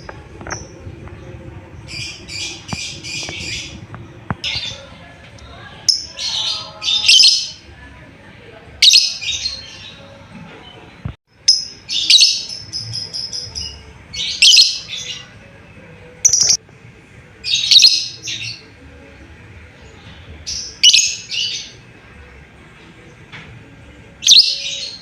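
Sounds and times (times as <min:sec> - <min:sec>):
lovebird shrill rapid chirps: 0:16.3 - 0:16.6.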